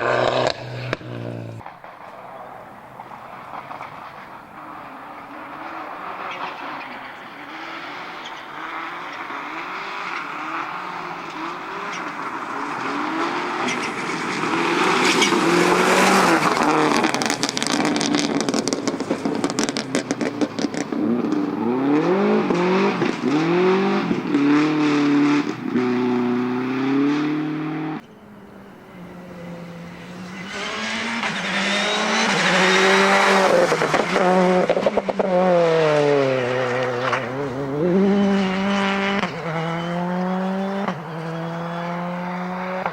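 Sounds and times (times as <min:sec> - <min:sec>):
rally car engine revving: 0:00.0 - 0:02.1, 0:02.9 - 0:42.9
exhaust crackling pops: 0:00.0 - 0:04.7, 0:13.6 - 0:21.7.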